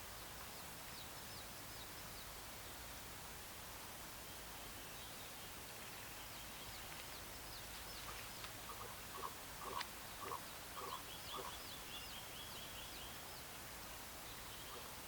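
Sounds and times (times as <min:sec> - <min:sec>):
faint high chirping: 0:08.7 - 0:12.2.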